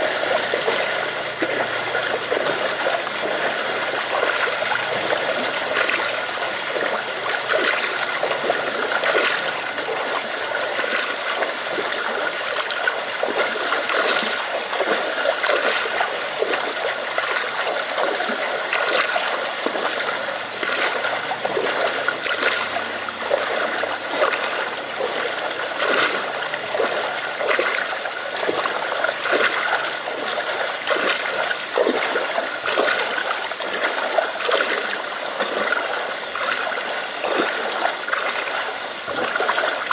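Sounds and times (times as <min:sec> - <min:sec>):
rain falling: 0:00.0 - 0:27.7
water trickling and splashing: 0:00.0 - 0:39.9.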